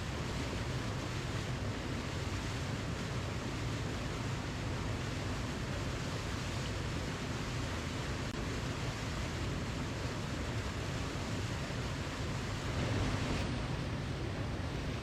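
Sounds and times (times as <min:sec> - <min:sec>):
waterfall rushing: 0:09.5 - 0:15.0.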